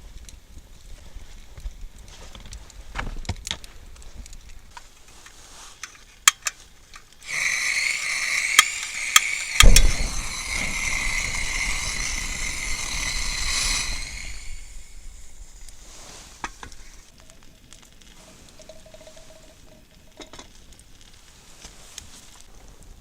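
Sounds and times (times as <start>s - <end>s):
sharp cracks: 6.3s - 17.1s
meat sizzling: 7.2s - 17.1s
heavy thump: 9.4s - 16.6s.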